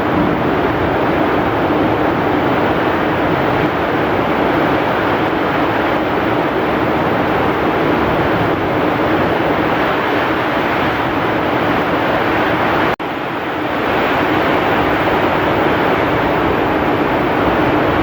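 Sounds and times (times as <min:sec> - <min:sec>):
heavy rain: 0:00.0 - 0:18.0
strong wind: 0:00.0 - 0:18.0.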